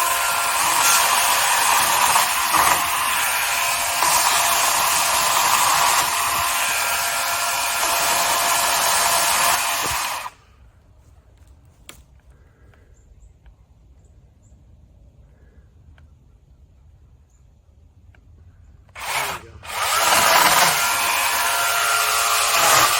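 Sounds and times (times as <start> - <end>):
battery chainsaw whining: 0.0 - 10.4, 19.0 - 22.9.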